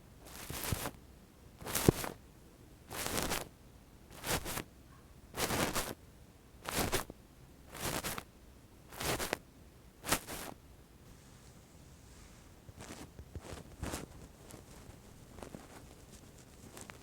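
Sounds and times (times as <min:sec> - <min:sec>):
earpick swishing on microphone: 0:00.2 - 0:01.0, 0:01.6 - 0:02.2, 0:02.9 - 0:03.5, 0:04.1 - 0:04.6, 0:05.4 - 0:06.0, 0:06.6 - 0:07.1, 0:07.7 - 0:08.2, 0:08.9 - 0:09.4, 0:10.0 - 0:10.6, 0:12.2 - 0:16.0.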